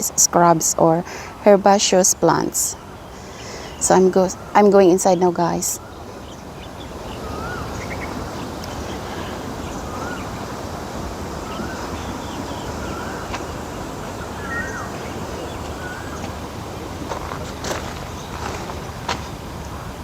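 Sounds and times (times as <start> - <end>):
outdoor background hiss: 0.0 - 20.0
bird whistling call: 7.2 - 8.1, 14.4 - 16.2.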